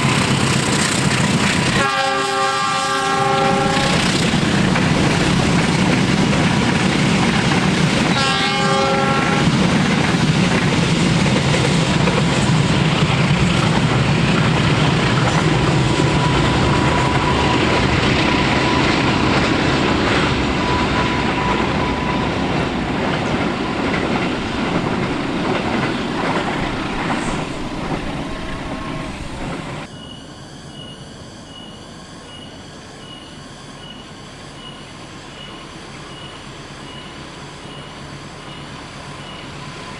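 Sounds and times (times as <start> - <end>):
wheels clickety-clack: 0.0 - 1.8, 3.5 - 29.9
freight train rumbling: 0.0 - 29.9
locomotive horn blast: 1.6 - 4.2, 8.0 - 9.7.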